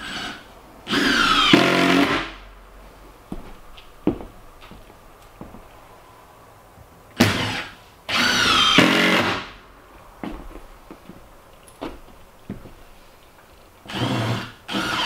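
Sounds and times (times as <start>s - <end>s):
power drill whirring: 0.0s - 2.4s, 7.2s - 9.6s, 13.9s - 15.0s.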